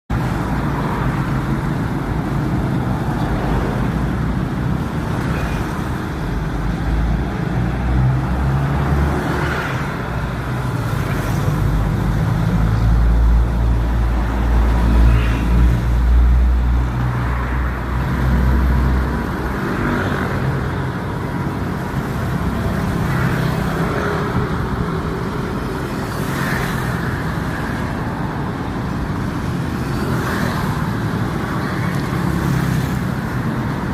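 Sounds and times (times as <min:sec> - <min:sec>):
road traffic passing: 0:00.1 - 0:33.9.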